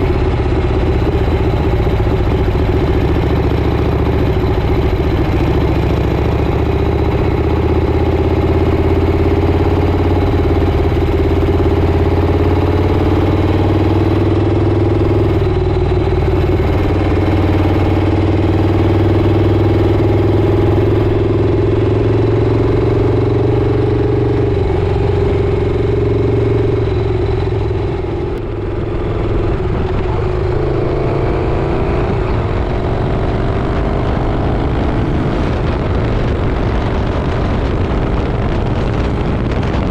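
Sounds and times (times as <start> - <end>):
motorcycle engine running: 0.0 - 39.9
wind rush: 24.1 - 39.9.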